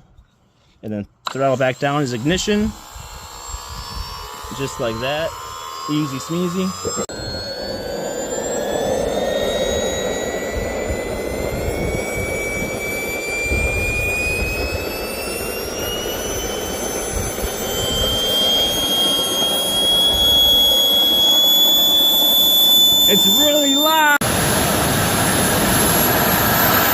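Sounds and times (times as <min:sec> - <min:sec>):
jet turbine spooling up: 0:01.3 - 0:26.9.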